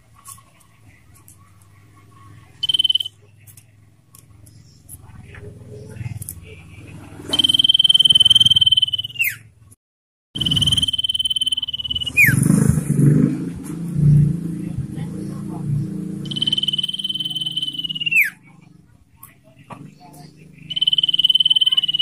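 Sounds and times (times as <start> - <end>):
bird drawn-out whistles: 2.6 - 3.1, 7.3 - 9.5, 10.4 - 12.4, 16.3 - 18.4.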